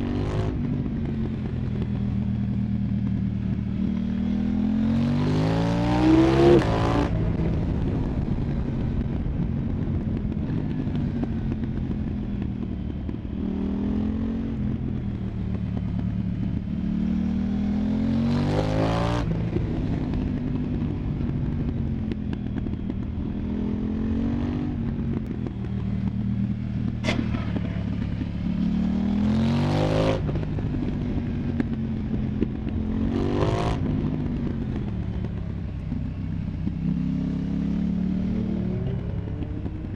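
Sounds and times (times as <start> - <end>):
motorcycle engine accelerating: 0.0 - 39.9
sharp exhaust crack: 27.0 - 28.6.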